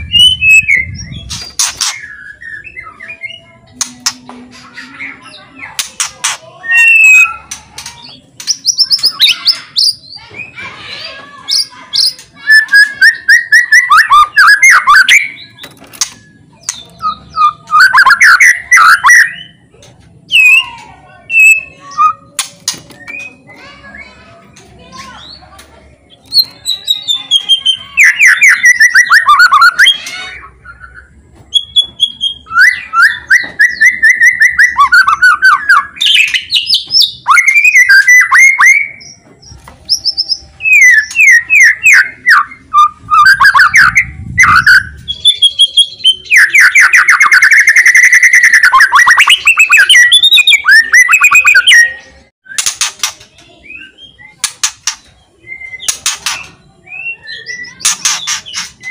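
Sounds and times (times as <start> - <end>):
songbird singing loudly: 16.2 - 19.6, 26.2 - 39.2, 39.9 - 52.2.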